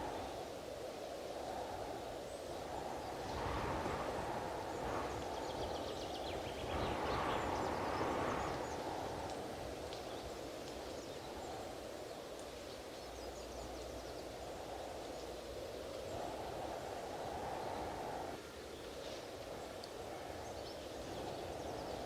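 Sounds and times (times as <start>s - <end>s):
strong wind gusts: 0.0s - 22.0s.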